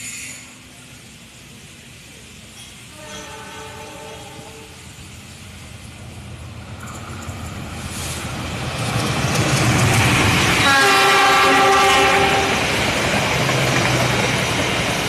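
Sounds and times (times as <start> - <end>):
train running noise: 0.0 - 15.0
locomotive horn: 2.9 - 4.8, 10.6 - 12.6.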